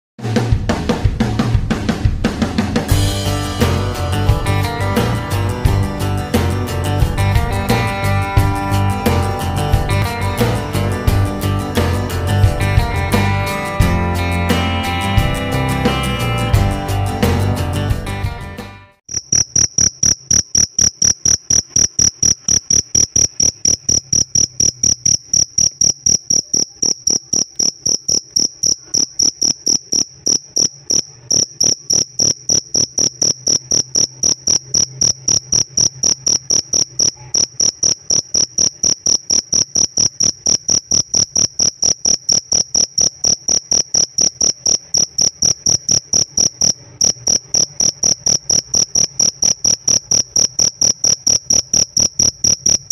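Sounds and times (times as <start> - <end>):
cricket chirping: 19.1 - 52.9.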